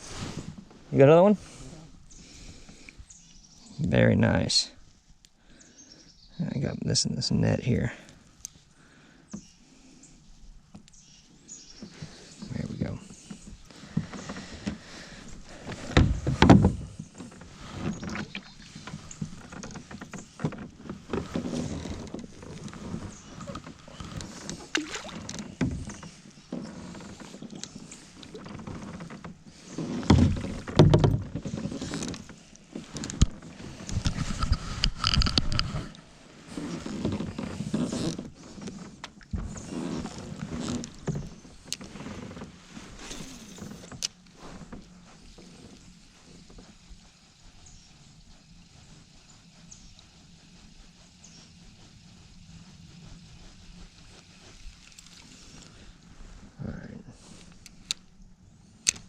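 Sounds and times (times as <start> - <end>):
water sloshing: 12.0 - 43.8.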